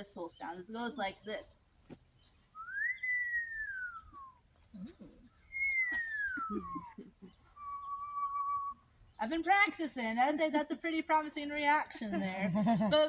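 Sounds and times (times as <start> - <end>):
person whistling owl call: 2.6 - 4.9, 5.5 - 8.8.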